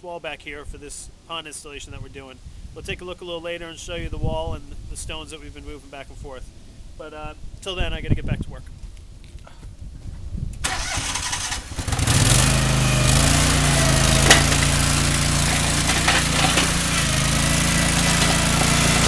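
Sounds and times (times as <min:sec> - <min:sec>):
loader engine starting and running: 0:10.6 - 0:19.0
metallic clank: 0:14.1 - 0:17.2.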